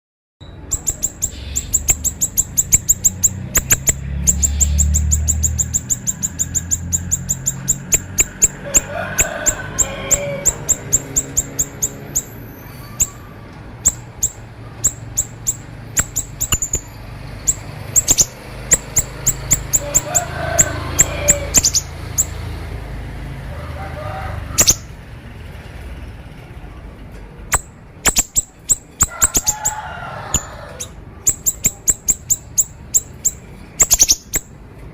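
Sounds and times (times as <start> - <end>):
songbird singing high chips: 0.4 - 8.9, 9.7 - 20.1, 20.9 - 22.4, 30.8 - 34.6
lower bird warbling: 0.4 - 22.6, 24.3 - 25.0, 27.5 - 34.5.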